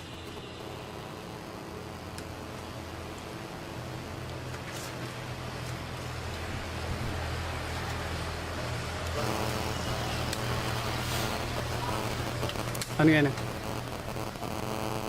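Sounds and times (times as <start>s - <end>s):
constant low hum: 0.0s - 15.0s
road traffic noise: 0.0s - 15.0s
faint pitched drone: 9.1s - 15.0s.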